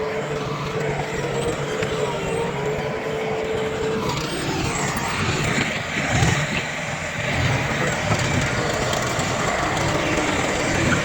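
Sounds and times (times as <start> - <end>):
heavy diesel machinery engine rumble: 0.0 - 11.0.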